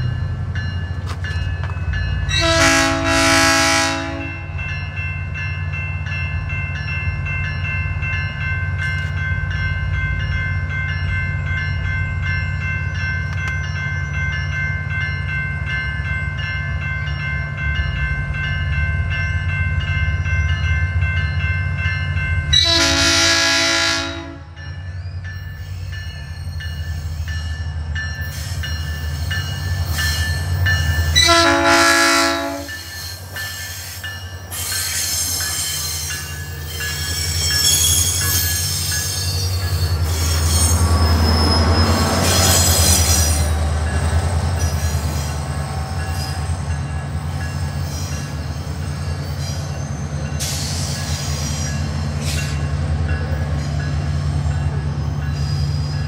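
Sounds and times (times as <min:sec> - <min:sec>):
wheels squealing and clattering on rails: 0:00.0 - 0:23.9, 0:24.6 - 0:56.0
diesel train rumble: 0:00.0 - 0:56.0
train horn blasts: 0:02.3 - 0:04.6, 0:22.5 - 0:24.6, 0:31.1 - 0:32.9.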